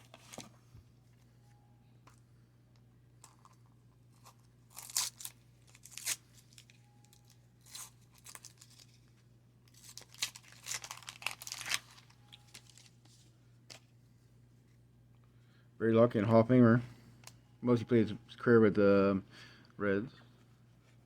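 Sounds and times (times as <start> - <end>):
wax paper wrapper crinkling: 3.4 - 13.3.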